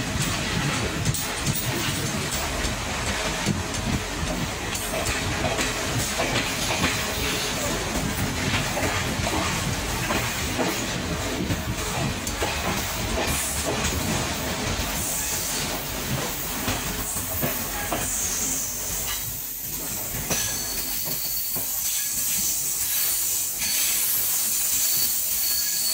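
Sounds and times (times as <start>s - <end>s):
train rumble and hiss: 0.0s - 25.9s
high wheel squeal: 20.3s - 25.9s.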